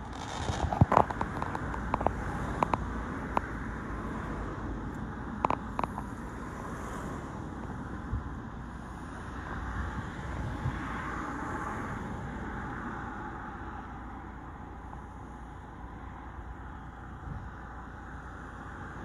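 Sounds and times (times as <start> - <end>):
distant fireworks crackling: 0.0 - 2.7.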